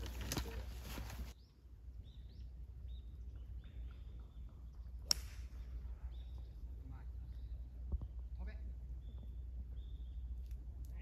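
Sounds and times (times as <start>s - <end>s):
small birds chirping: 0.0s - 11.0s
sharp crack: 5.0s - 5.7s.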